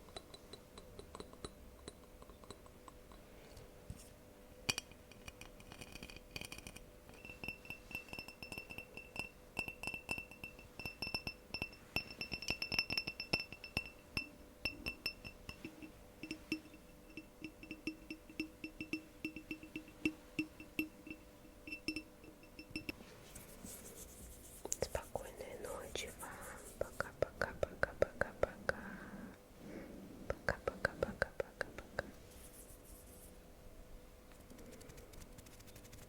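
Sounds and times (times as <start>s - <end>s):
fingernails tapping on glass: 4.7s - 23.0s.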